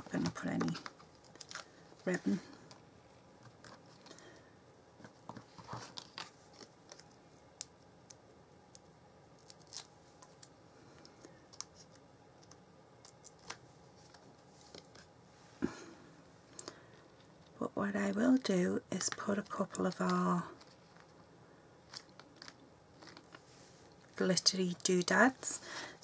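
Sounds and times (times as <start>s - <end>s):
paper and craft pieces handled: 0.0s - 2.8s, 5.0s - 7.3s, 19.0s - 26.0s.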